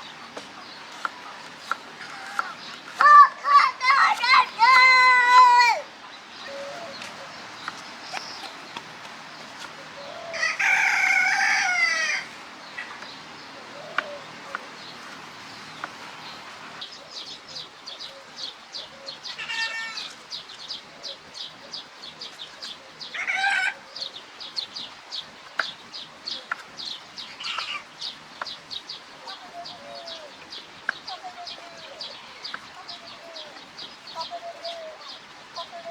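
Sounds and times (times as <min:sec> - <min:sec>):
chicken calls: 0:00.0 - 0:35.9
rooster crowing: 0:10.0 - 0:12.4.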